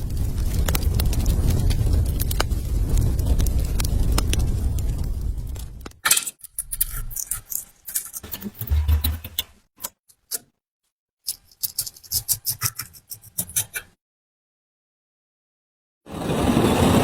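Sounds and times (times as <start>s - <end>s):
hand tools clicking and tapping: 6.0s - 10.5s, 11.3s - 13.9s.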